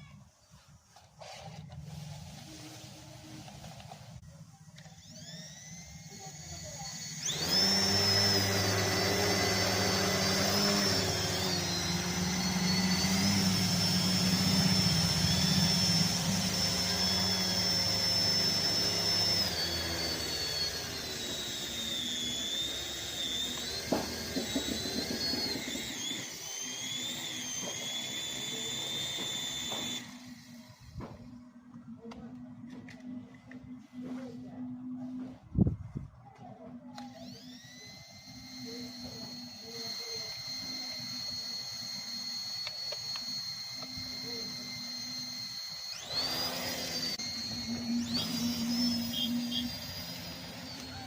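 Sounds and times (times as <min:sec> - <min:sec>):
toy electric motor whining: 0:00.0 - 0:32.0, 0:36.6 - 0:51.0.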